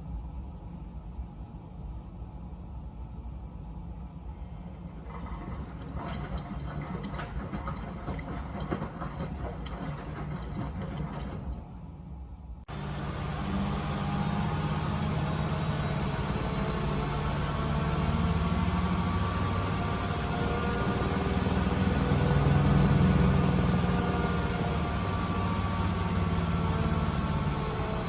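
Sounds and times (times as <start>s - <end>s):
washing machine drum sloshing: 5.0s - 11.6s.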